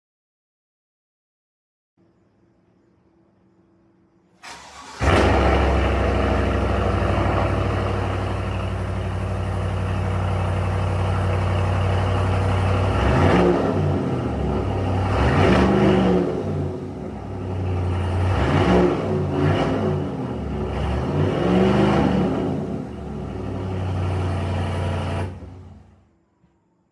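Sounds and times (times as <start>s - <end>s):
engine cranking: 4.4s - 9.0s
car engine idling: 4.4s - 15.2s
engine revving: 4.4s - 26.0s.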